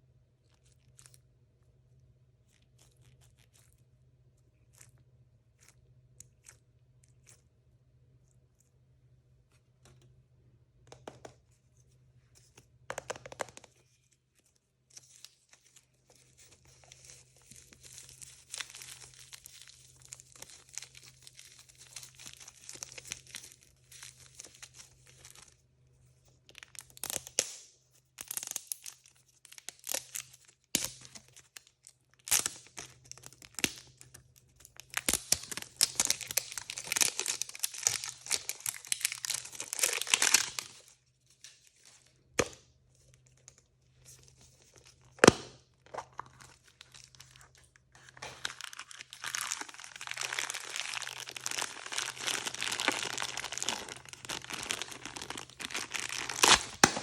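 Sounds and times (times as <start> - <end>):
plastic packaging tearing and crinkling: 16.4 - 25.4, 29.6 - 31.2, 34.8 - 40.9, 44.6 - 57.0.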